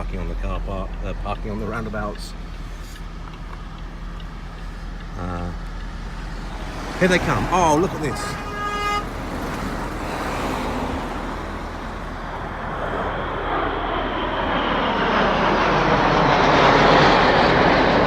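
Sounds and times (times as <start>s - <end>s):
road traffic: 0.0s - 18.0s
jet roar: 6.0s - 18.0s.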